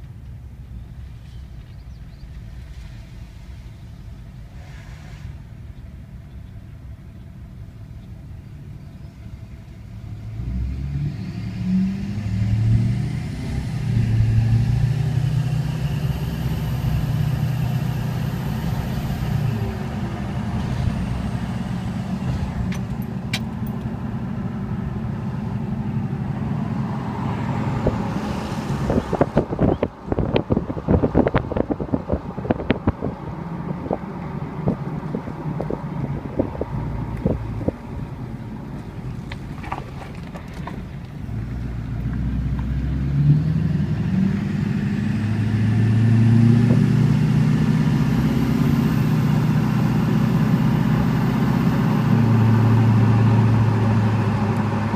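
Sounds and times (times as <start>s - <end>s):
vehicle engine passing by: 9.1s - 54.9s
wind buffeting microphone: 16.7s - 41.4s, 45.8s - 48.4s.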